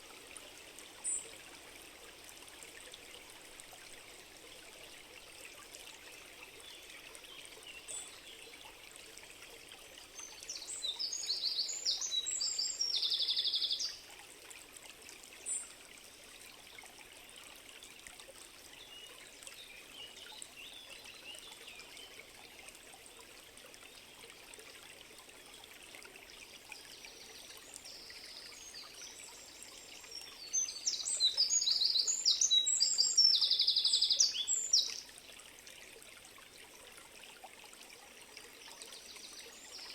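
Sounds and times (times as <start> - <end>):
stream running: 0.0 - 39.9
songbird singing with trill: 30.4 - 35.0.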